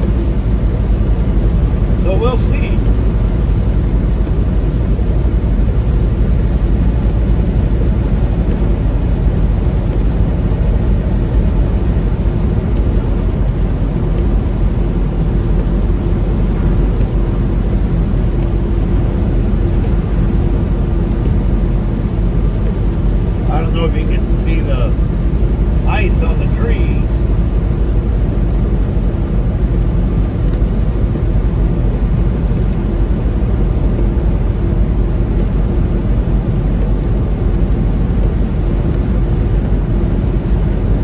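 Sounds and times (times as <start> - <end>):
truck engine and road noise: 0.0 - 41.0
faint steady tone: 23.3 - 27.4.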